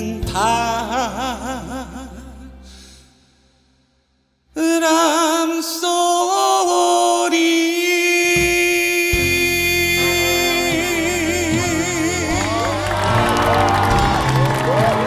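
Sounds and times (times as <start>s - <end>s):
man singing held note: 4.6s - 13.3s
band accompaniment: 9.1s - 15.0s.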